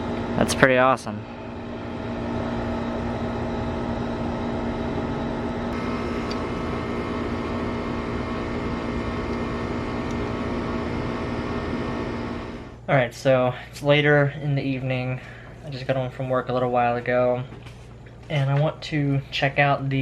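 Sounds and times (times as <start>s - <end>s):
electric motor humming: 1.3s - 12.8s.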